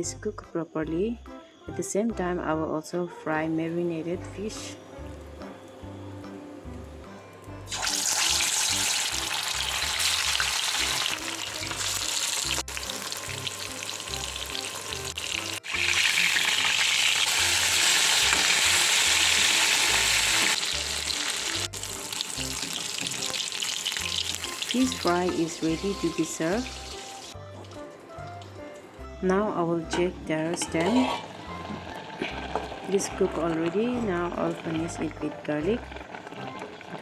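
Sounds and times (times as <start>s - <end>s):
fish sizzling in hot oil: 7.7s - 27.4s, 30.9s - 33.7s, 35.8s - 37.0s.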